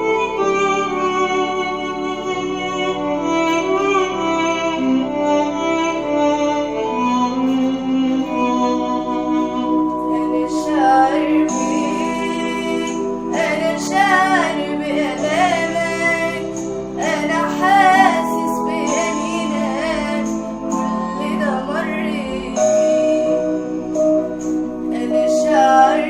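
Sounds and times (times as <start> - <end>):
sustained instrumental accompaniment: 0.0 - 26.0
woman singing a hymn: 10.0 - 24.0, 24.9 - 26.0.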